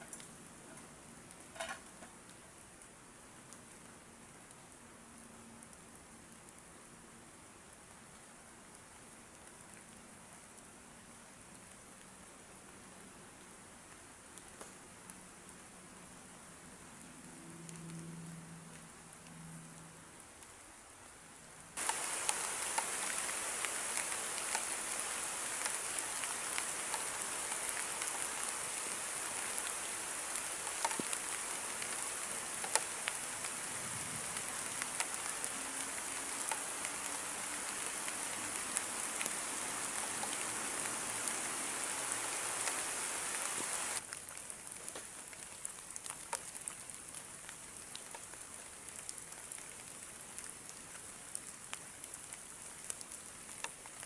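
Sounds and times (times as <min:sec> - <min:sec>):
heavy rain falling: 0:21.8 - 0:54.0.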